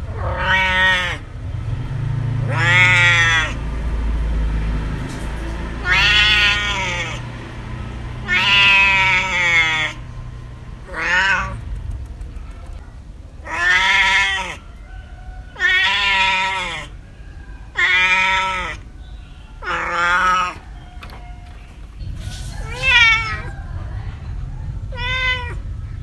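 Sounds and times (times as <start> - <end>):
cat meowing: 0.1 - 1.2, 2.5 - 3.6, 5.8 - 7.2, 8.2 - 10.0, 10.8 - 11.7, 13.4 - 14.7, 15.5 - 16.9, 17.7 - 18.8, 19.5 - 21.9, 22.5 - 23.5, 24.9 - 25.6.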